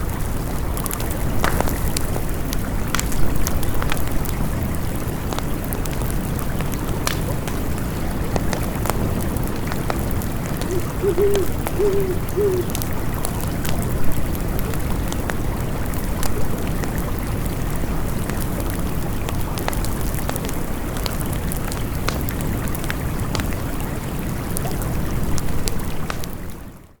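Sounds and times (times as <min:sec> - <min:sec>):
campfire crackling: 0:00.0 - 0:26.9
stream flowing: 0:09.6 - 0:16.0.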